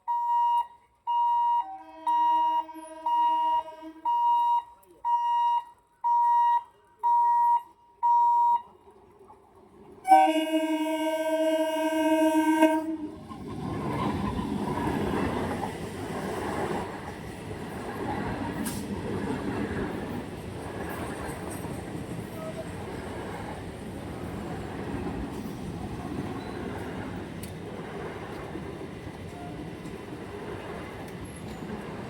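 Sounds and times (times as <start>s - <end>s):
level-crossing warning beeps: 0.0s - 8.8s
train horn blast: 1.6s - 4.2s, 10.0s - 13.4s
train running rumble: 9.4s - 32.0s.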